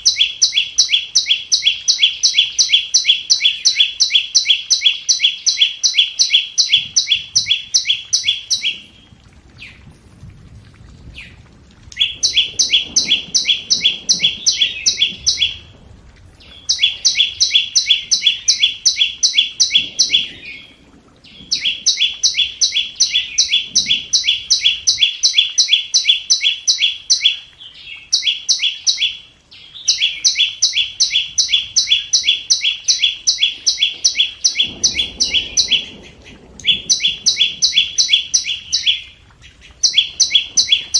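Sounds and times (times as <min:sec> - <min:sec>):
bird calling with high ticking notes: 0:00.0 - 0:09.0, 0:11.9 - 0:15.7, 0:16.4 - 0:40.9.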